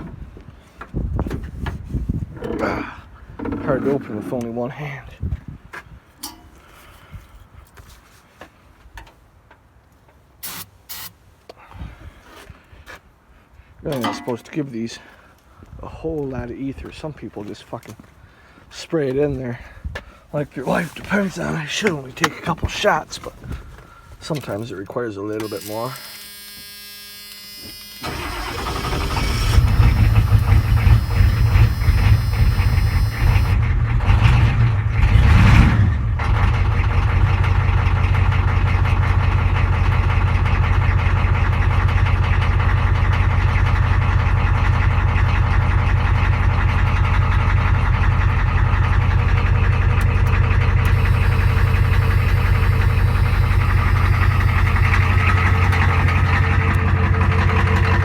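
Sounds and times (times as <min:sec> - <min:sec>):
diesel engine starting and idling: 0:25.4 - 0:58.0.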